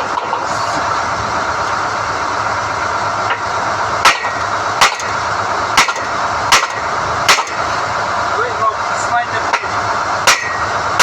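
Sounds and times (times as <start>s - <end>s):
drilling rig running: 0.0s - 11.0s
sharp knocks: 5.8s - 7.6s.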